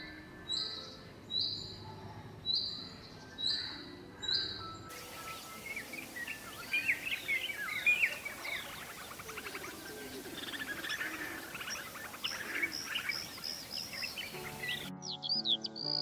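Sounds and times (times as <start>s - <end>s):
birds chirping and trilling: 0.0s - 16.0s
steady background hiss: 4.8s - 14.9s.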